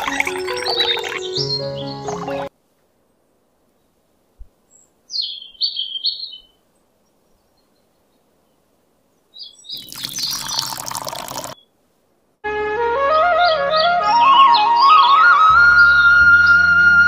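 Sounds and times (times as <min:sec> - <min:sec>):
water pouring and splashing: 0:00.0 - 0:01.4, 0:02.0 - 0:02.5, 0:09.8 - 0:11.6
bird chirping: 0:00.0 - 0:02.5, 0:04.7 - 0:11.8.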